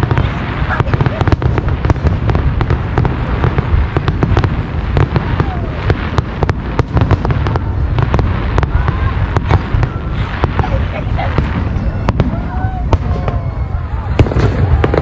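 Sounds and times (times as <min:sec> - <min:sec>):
deep rumble: 0:00.0 - 0:15.0
fireworks cracking and banging: 0:00.0 - 0:15.0.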